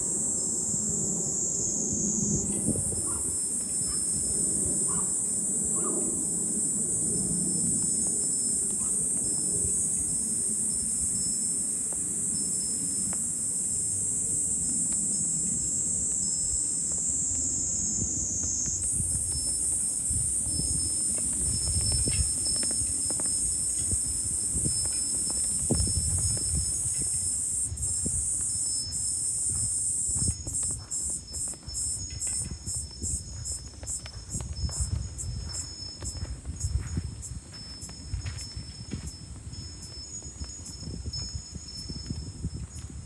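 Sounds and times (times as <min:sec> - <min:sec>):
cicadas chorus: 0:00.0 - 0:43.0.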